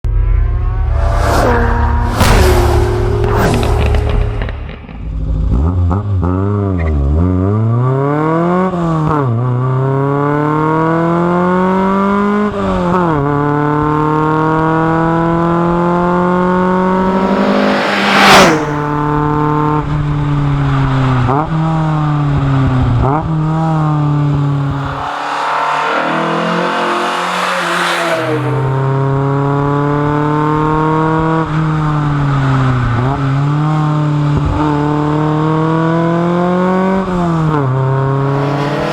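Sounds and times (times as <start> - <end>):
car engine accelerating through gears: 16.8 - 19.2, 24.3 - 29.4, 38.0 - 38.9
loud burst of noise: 17.0 - 19.1, 24.4 - 29.0.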